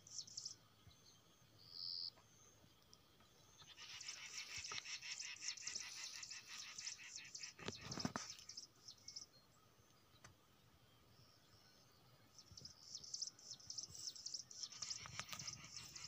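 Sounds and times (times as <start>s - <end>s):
bird chattering: 3.7s - 7.8s.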